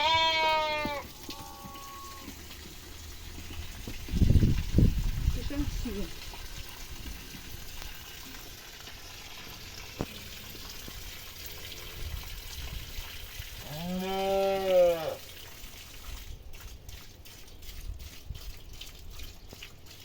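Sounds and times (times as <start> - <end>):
cow mooing: 0.0 - 2.4, 13.6 - 15.2.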